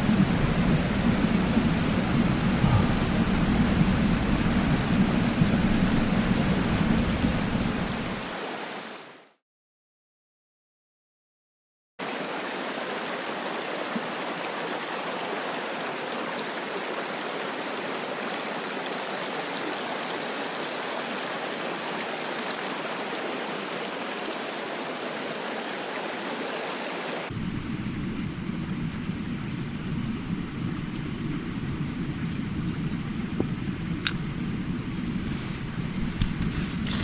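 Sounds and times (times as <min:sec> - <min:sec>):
stream water rushing: 0:00.0 - 0:09.3, 0:12.0 - 0:37.0.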